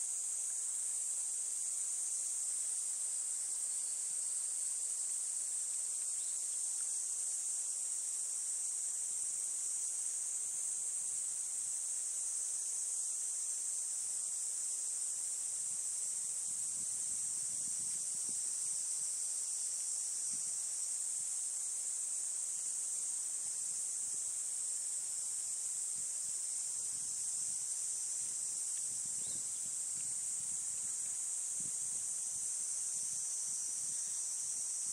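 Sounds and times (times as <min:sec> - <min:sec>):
high-pitched insect chorus: 0:00.0 - 0:34.9.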